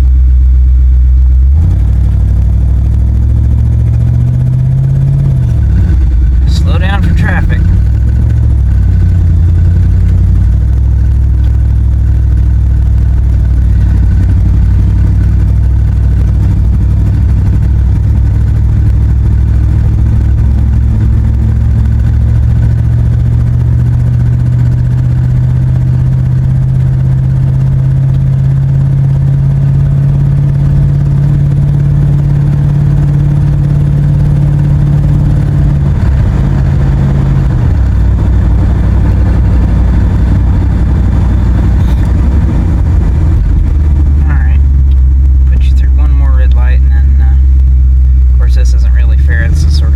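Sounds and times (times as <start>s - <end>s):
truck engine running: 0.0s - 49.9s.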